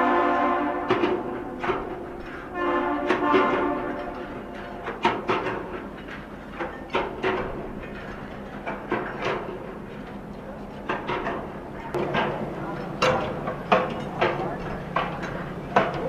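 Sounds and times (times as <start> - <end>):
ship horn: 0.0 - 5.6, 12.0 - 16.0.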